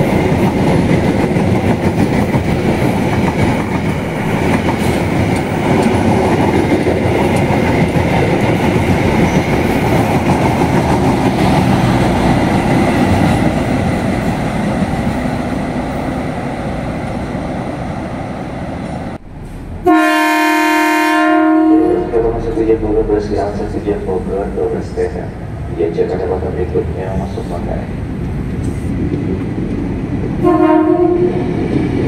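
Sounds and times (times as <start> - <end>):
train horn blast: 19.8 - 22.4, 30.4 - 31.4.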